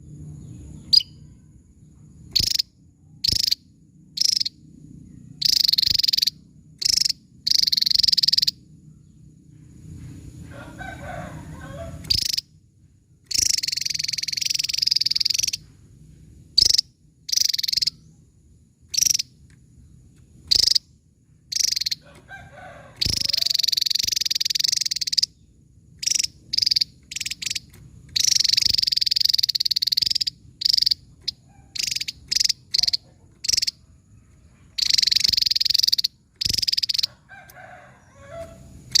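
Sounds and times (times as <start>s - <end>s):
bird singing high trills: 0.4s - 1.4s, 13.3s - 15.7s, 23.0s - 37.1s.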